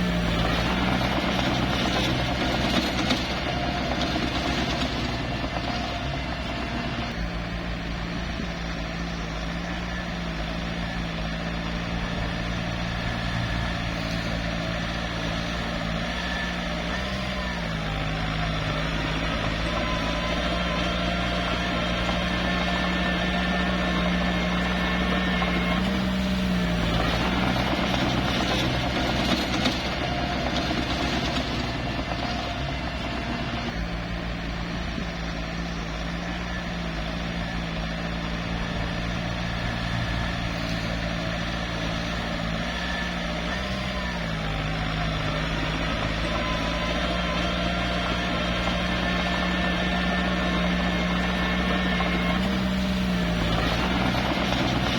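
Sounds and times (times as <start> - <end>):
bulldozer diesel engine running: 0.0 - 54.9
rough mechanical noise: 0.0 - 54.9.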